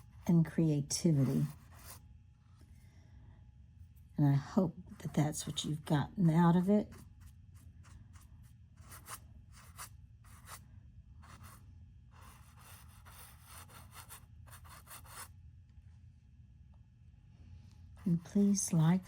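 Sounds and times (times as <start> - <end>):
brush scratching on painting surface: 1.1 - 2.0, 6.5 - 10.6, 11.2 - 11.6, 12.2 - 15.3.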